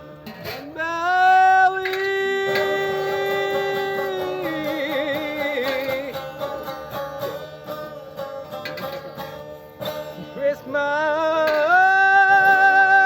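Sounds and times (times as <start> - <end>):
plucked strings: 0.0 - 13.0
person singing long note: 0.8 - 5.7.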